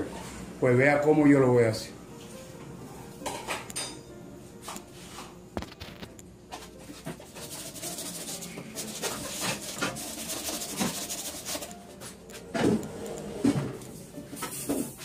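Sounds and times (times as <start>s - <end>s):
plastic drum scraping and rubbing: 7.0s - 11.7s.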